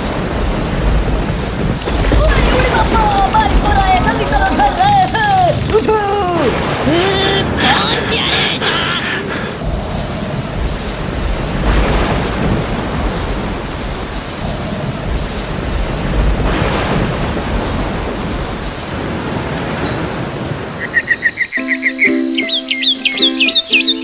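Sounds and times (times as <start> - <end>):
rolling thunder: 0.0 - 7.8, 9.6 - 24.0
steady rain: 0.0 - 24.0.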